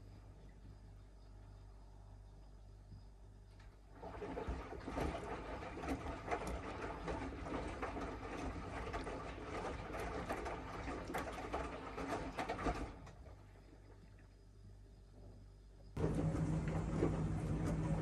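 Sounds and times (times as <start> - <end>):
washing machine drum turning: 16.0 - 18.0.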